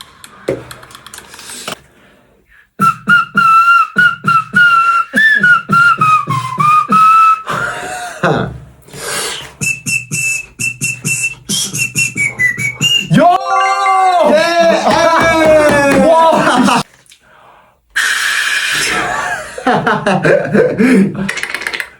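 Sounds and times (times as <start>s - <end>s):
beatboxing kick and snare: 2.8s - 7.2s, 9.1s - 13.1s
whistled melody: 2.8s - 7.8s, 9.3s - 13.3s.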